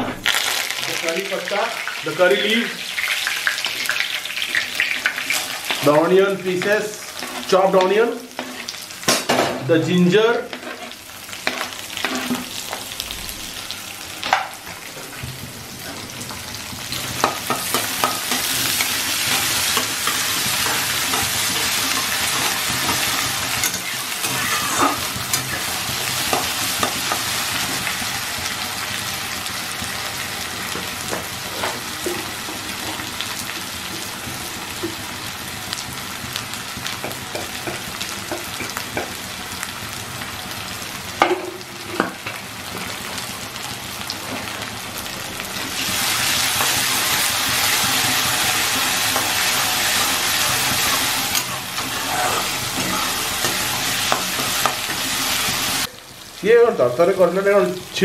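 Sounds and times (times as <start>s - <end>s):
food sizzling in hot oil: 0.1s - 58.0s
metal spatula scraping a pan: 10.5s - 12.6s, 17.2s - 27.7s, 47.6s - 55.5s.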